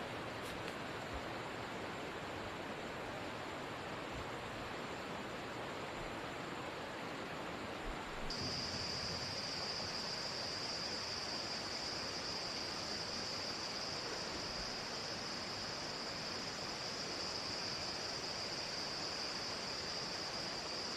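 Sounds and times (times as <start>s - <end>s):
high-pitched insect drone: 8.3s - 20.9s
rushing hiss: 8.3s - 20.9s.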